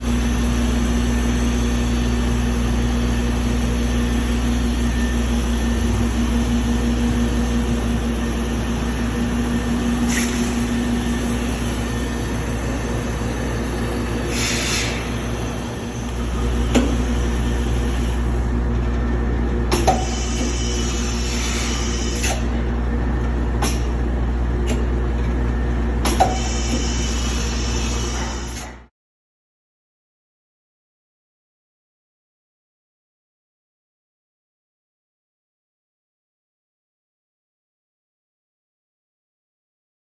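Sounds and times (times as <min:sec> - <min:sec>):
machining center hum: 0:00.0 - 0:28.9
short hisses: 0:14.3 - 0:15.2.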